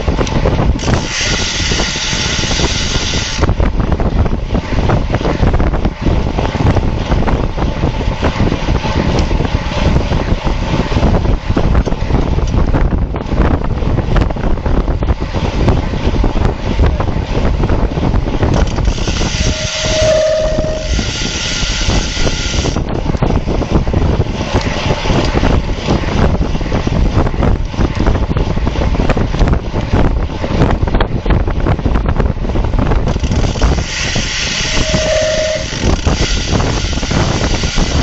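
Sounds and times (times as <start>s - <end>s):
heavy wind buffeting microphone: 0.0s - 38.0s
short steady tone: 19.3s - 21.8s, 34.6s - 35.9s.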